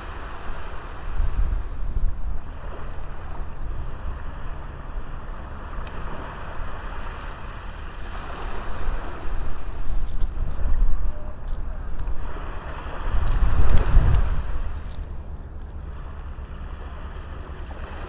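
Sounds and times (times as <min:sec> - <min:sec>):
sea waves washing onto beach: 0:00.0 - 0:18.0
wind rumbling on microphone: 0:00.0 - 0:18.0.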